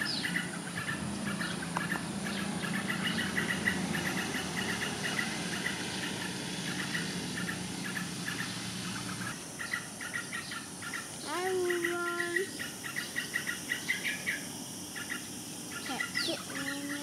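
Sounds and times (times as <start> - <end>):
low engine hum: 0.0 - 12.6
birds chirping: 0.0 - 17.0.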